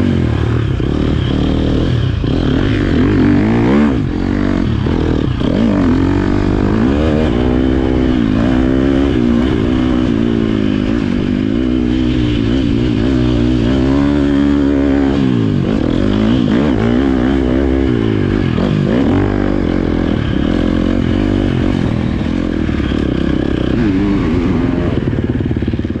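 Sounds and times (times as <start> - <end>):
motocross bike engine revving: 0.0 - 26.0.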